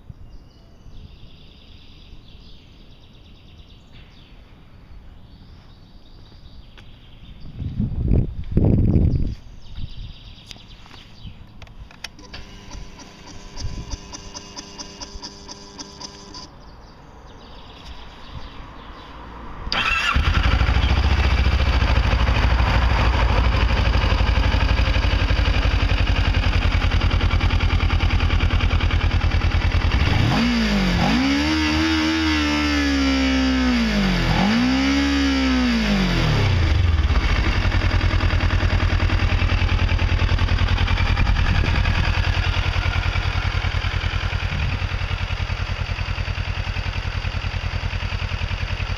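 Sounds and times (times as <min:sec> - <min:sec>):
motorcycle engine starting and idling: 0:11.2 - 0:16.7, 0:19.7 - 0:48.9
motorcycle engine revving: 0:12.0 - 0:16.5, 0:19.7 - 0:48.9.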